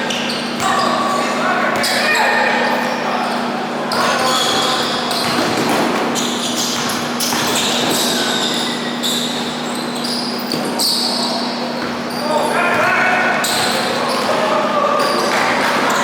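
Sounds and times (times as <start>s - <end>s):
short knocks and squeaks: 3.9s - 14.3s
basketball bouncing on court: 4.0s - 14.4s.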